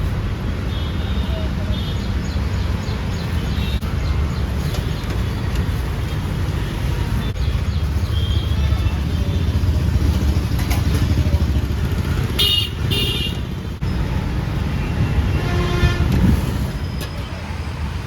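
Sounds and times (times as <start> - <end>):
busy road traffic: 0.0 - 18.0
vehicle horn toots: 12.4 - 13.4, 15.3 - 16.3.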